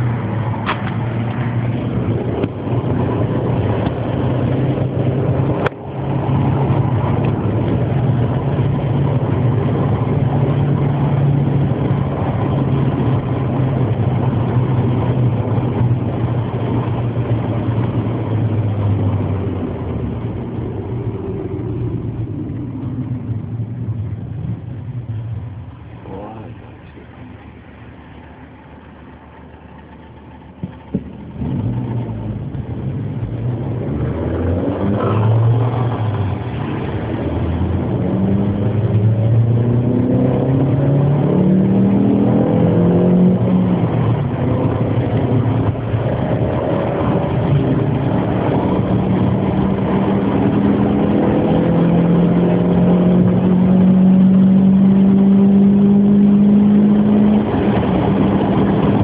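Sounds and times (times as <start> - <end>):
racing car engine revving: 31.4 - 59.0.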